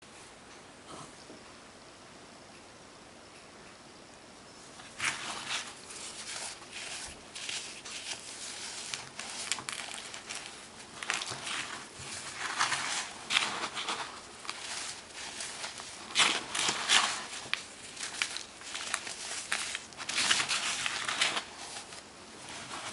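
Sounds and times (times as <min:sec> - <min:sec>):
baking soda crunching: 0:04.8 - 0:22.9.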